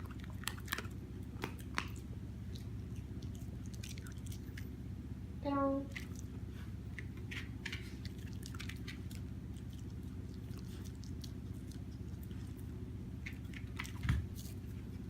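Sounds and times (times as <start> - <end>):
puppy mouth smacking: 0.0 - 4.7, 7.0 - 14.2
low room hum: 0.0 - 15.0.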